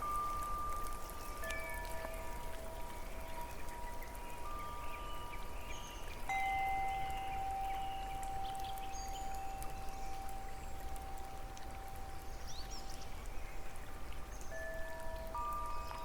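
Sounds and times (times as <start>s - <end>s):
flowing water: 0.0s - 16.0s
chime notes ringing: 6.3s - 9.7s.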